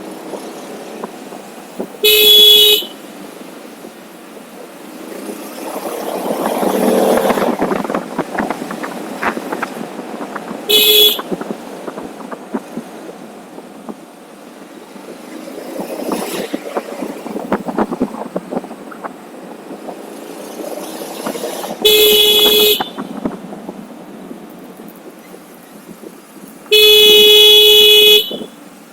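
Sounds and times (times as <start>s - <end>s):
wind and road noise: 0.0s - 28.9s
vehicle horn beeping: 2.0s - 3.0s, 10.7s - 11.4s, 21.8s - 23.2s, 26.7s - 28.6s.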